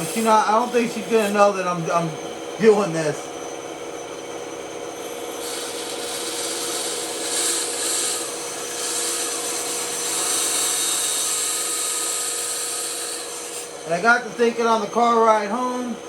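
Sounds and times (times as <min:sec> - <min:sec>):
bandsaw cutting wood: 0:00.0 - 0:03.3, 0:04.9 - 0:16.0.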